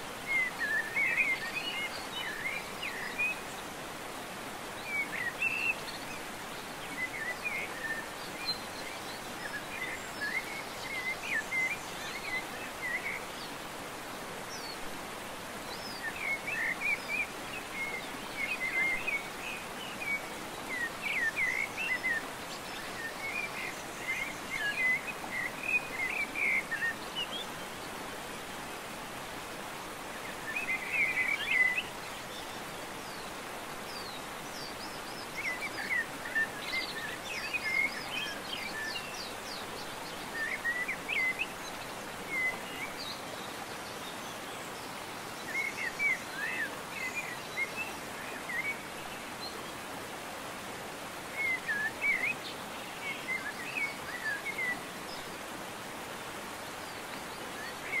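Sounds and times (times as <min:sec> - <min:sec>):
steady outdoor hiss: 0:00.0 - 0:58.0
birds chirping: 0:04.8 - 0:49.9.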